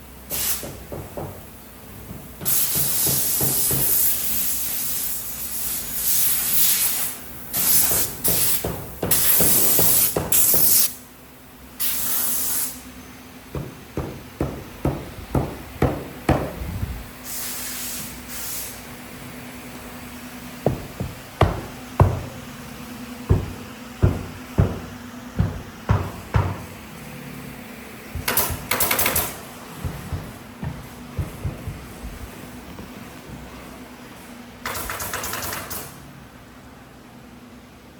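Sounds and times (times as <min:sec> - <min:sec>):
compressed air hissing: 0:00.3 - 0:01.0, 0:02.4 - 0:11.0, 0:11.8 - 0:12.9, 0:16.2 - 0:19.0
machine hum: 0:18.8 - 0:34.3
sharp irregular knocks: 0:20.6 - 0:22.4, 0:23.3 - 0:26.7, 0:28.1 - 0:32.9.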